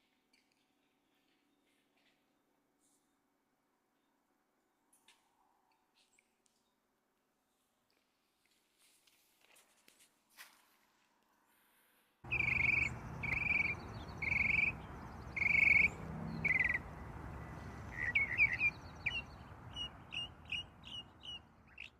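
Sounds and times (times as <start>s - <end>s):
outdoor background noise: 0.0s - 21.9s
bird calling: 12.3s - 21.9s.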